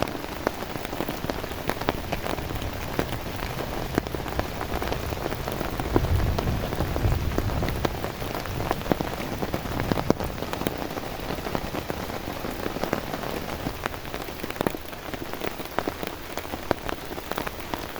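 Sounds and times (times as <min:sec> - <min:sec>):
heavy rain: 0:00.0 - 0:17.9
raindrops ticking: 0:00.0 - 0:17.9
low rumble: 0:01.2 - 0:11.7.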